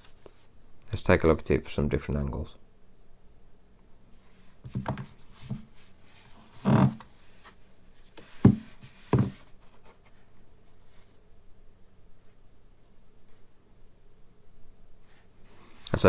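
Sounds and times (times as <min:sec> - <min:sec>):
device knocks and rubs: 0:04.6 - 0:05.7, 0:08.4 - 0:09.5.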